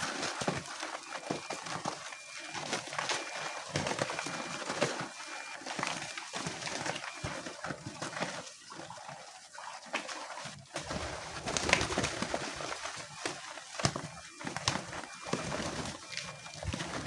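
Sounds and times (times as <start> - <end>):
pigeons cooing: 10.8 - 13.2.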